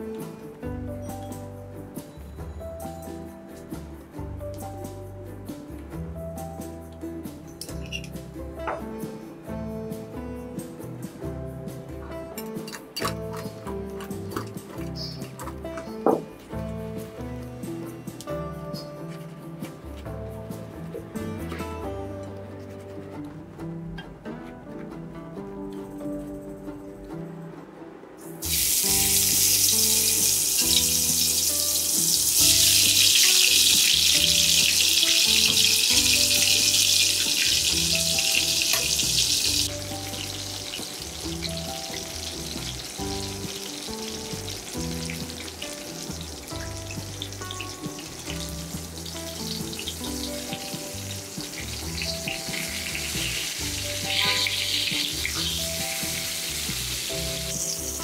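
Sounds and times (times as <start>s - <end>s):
eggplant sizzling in hot oil: 28.4s - 58.0s.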